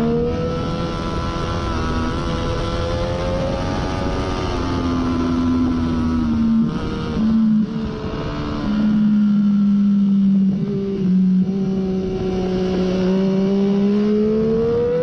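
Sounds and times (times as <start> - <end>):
motorcycle engine running hard: 0.0 - 15.0.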